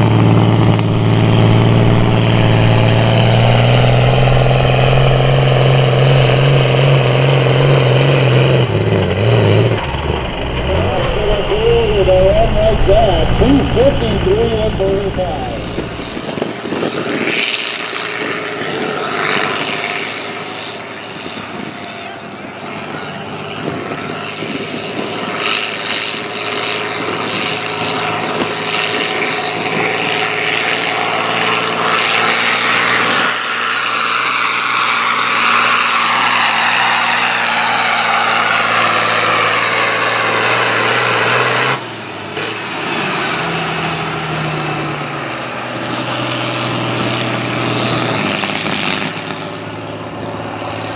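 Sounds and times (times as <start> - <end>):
tractor engine under load: 0.0 - 18.0.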